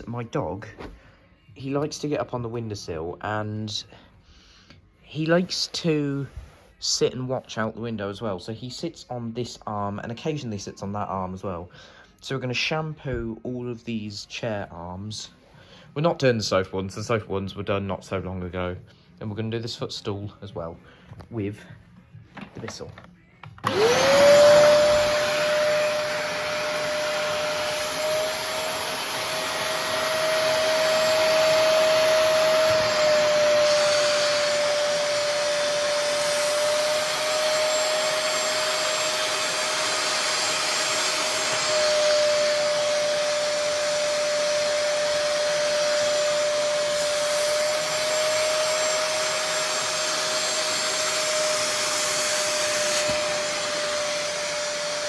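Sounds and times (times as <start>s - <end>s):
carpet cleaner motor whining: 22.4s - 55.0s.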